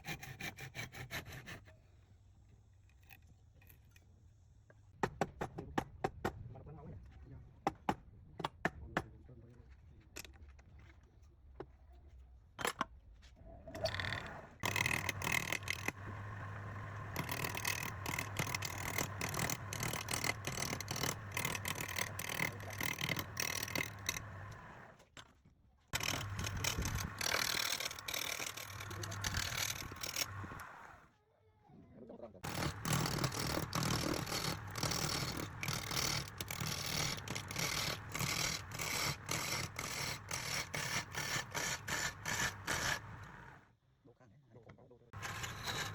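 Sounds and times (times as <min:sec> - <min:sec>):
turning tool scraping wood: 0:00.0 - 0:01.7, 0:13.8 - 0:24.9, 0:26.0 - 0:31.0, 0:32.4 - 0:43.6, 0:45.2 - 0:45.9
wood lathe motor hum: 0:14.2 - 0:24.9, 0:26.0 - 0:31.0, 0:32.5 - 0:43.6, 0:45.2 - 0:45.9.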